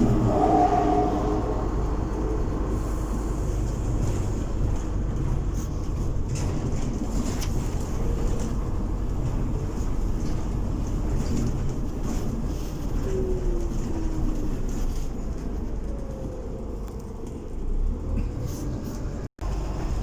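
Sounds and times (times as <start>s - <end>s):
bus engine drone: 0.0s - 20.0s
road noise: 0.0s - 20.0s.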